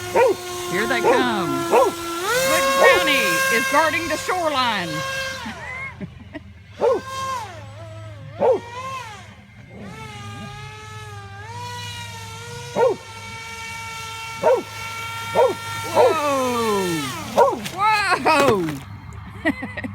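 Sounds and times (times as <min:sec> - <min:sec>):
dog barking: 0:00.0 - 0:03.7, 0:06.8 - 0:07.1, 0:08.4 - 0:08.7, 0:12.8 - 0:13.0, 0:14.4 - 0:14.7, 0:15.4 - 0:18.8
airboat motor whine: 0:00.0 - 0:19.9.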